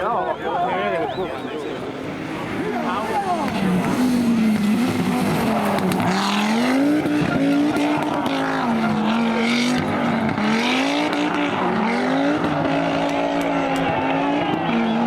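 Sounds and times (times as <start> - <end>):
rally car engine revving: 1.0 - 15.0.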